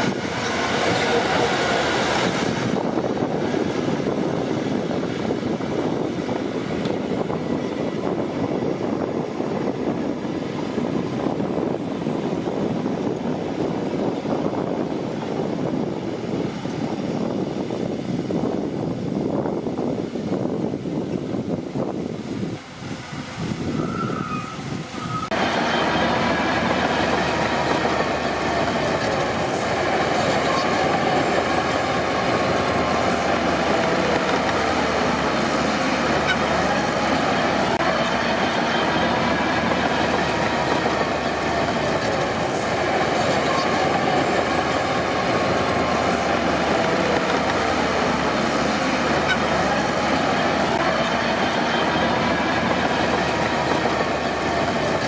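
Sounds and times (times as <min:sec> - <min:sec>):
steel tracks clanking and squealing: 0:00.0 - 0:09.2, 0:23.6 - 0:55.0
bulldozer diesel engine under load: 0:00.0 - 0:19.8, 0:24.6 - 0:55.0.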